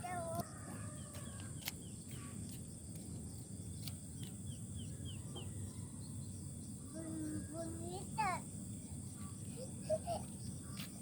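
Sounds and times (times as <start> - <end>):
bird chirping: 0.8 - 2.6, 3.2 - 7.7.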